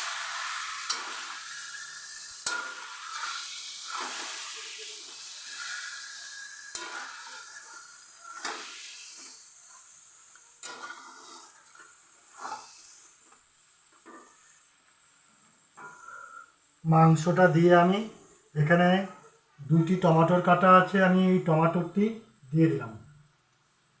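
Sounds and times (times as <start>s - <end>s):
spatula scraping pan: 0.0s - 13.2s
chicken sizzling in hot oil: 0.0s - 16.8s.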